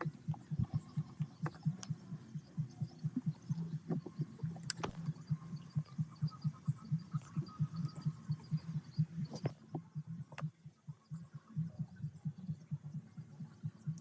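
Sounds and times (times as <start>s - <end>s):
metallic clicks: 4.6s - 5.2s.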